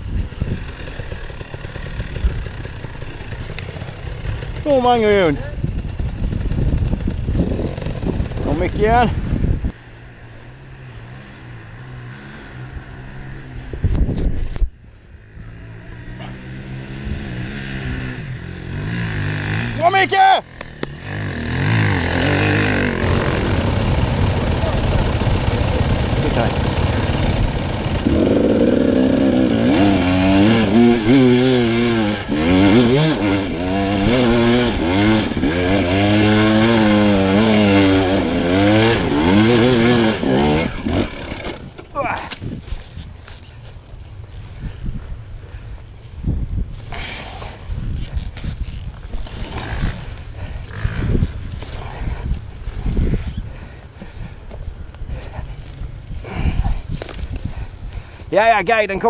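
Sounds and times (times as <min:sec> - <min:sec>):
dirt bike engine idling: 0:00.0 - 0:13.8, 0:14.8 - 0:59.0
rushing burst: 0:20.4 - 0:41.6.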